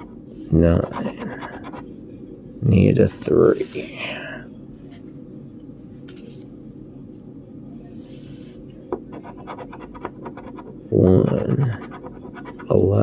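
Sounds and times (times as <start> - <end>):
scratching lottery ticket: 0.8 - 1.9, 9.1 - 12.9.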